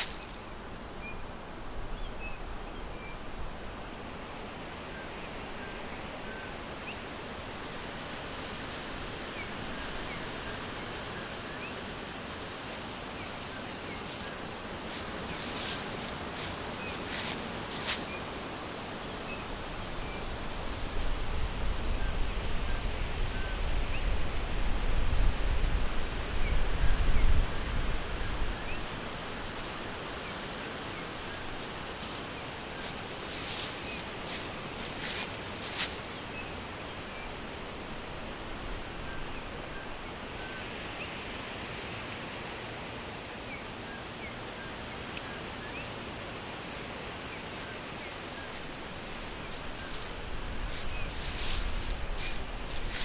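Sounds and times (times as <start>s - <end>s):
wind rustling in trees: 0.0s - 53.0s
brief rustles: 11.0s - 18.4s, 29.6s - 36.3s, 47.5s - 53.0s
wind gusts on microphone: 20.3s - 36.7s, 46.2s - 53.0s.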